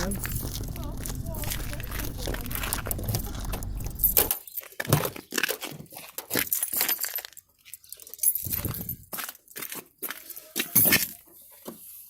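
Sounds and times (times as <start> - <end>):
keys jangling: 0.0 - 4.4.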